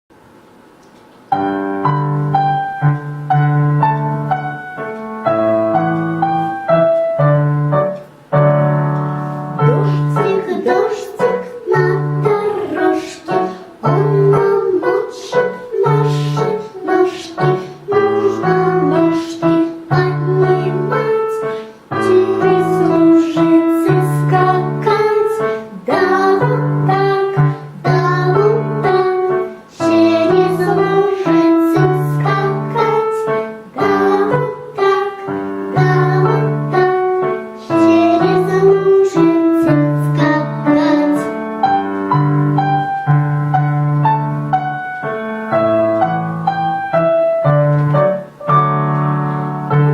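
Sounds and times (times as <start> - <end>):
child singing: 9.6 - 41.8.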